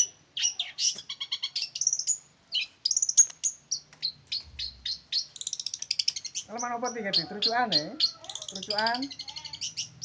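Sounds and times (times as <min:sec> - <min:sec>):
shrike singing chirps and whistles: 0:00.0 - 0:10.0.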